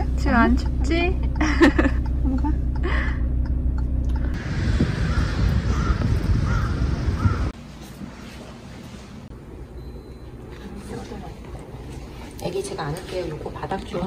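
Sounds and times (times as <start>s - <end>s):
car cabin rumble: 0.0s - 7.6s
outdoor air noise: 0.0s - 14.0s.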